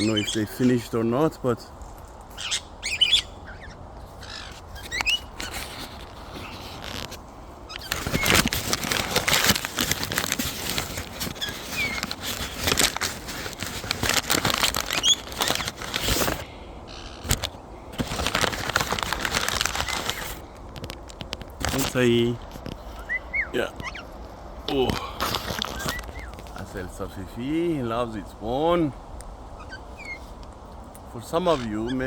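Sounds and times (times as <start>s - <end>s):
faint bird chirps: 2.4s - 5.7s, 22.8s - 24.2s, 29.6s - 30.4s
parrots crunching bones: 4.2s - 26.6s.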